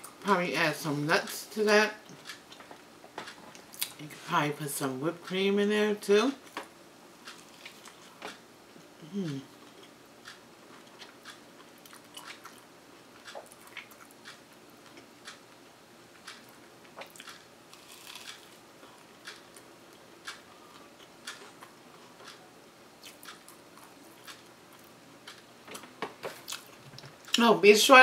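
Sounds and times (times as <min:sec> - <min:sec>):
person chewing with mouth clicks: 0:07.2 - 0:08.4, 0:09.0 - 0:15.4, 0:16.2 - 0:22.4, 0:23.0 - 0:25.4, 0:26.2 - 0:27.4.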